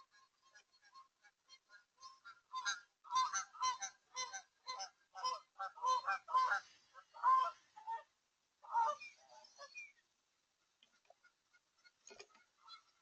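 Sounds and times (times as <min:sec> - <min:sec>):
geese honking: 0:00.0 - 0:09.9, 0:10.9 - 0:13.0.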